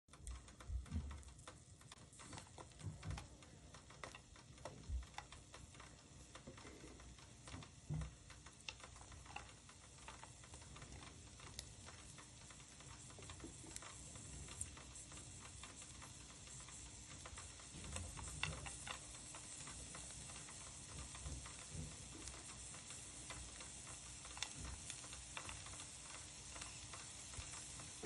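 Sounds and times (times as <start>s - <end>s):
soft low thumps: 0.6s - 1.4s
onion sizzling in oil: 0.7s - 28.0s.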